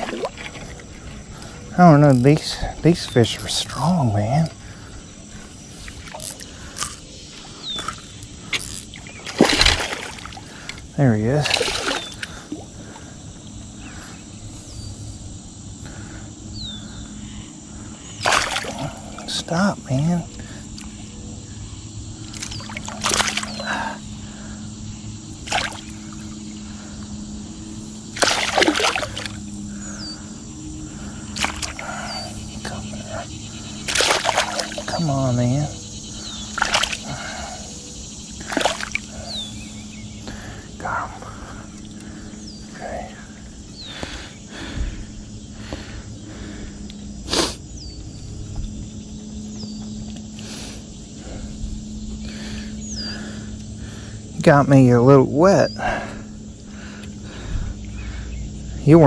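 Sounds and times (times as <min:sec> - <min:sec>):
fish splashing at water surface: 0:00.0 - 0:01.0, 0:05.8 - 0:10.8, 0:11.4 - 0:12.7, 0:18.2 - 0:19.2, 0:22.2 - 0:24.0, 0:25.4 - 0:26.2, 0:28.1 - 0:29.4, 0:31.3 - 0:32.1, 0:33.8 - 0:35.0, 0:36.5 - 0:37.5, 0:38.4 - 0:39.3
steady low hum: 0:00.0 - 0:59.0.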